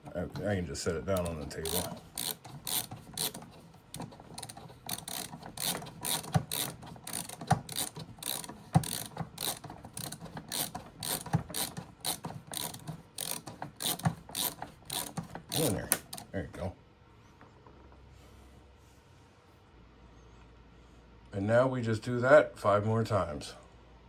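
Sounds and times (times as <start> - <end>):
ratcheting screwdriver clicking: 1.1 - 16.3.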